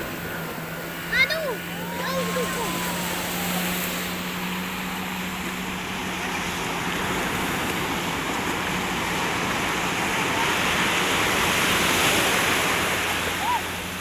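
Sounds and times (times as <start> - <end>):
sea surf rushing: 0.0 - 14.0.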